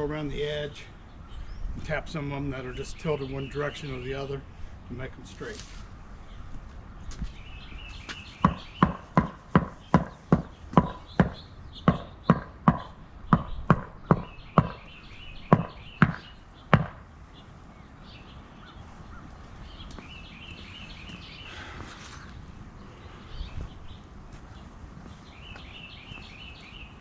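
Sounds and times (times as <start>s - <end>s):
wooden mallet tapping pavers: 8.4s - 14.9s, 15.5s - 17.0s.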